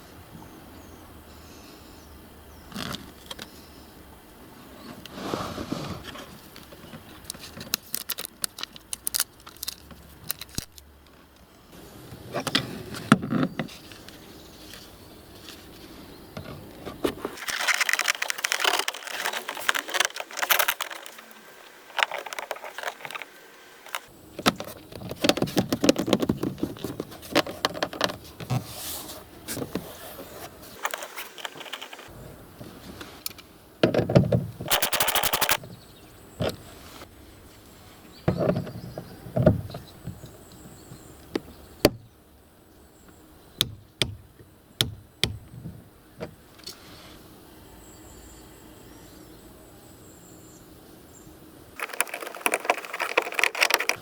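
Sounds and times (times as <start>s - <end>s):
rustling and scraping: 4.8s - 11.3s, 12.1s - 33.3s, 34.7s - 35.6s, 51.8s - 54.0s
hand tools clicking and rattling: 17.4s - 23.3s, 30.8s - 32.1s, 34.7s - 35.6s, 51.8s - 54.0s.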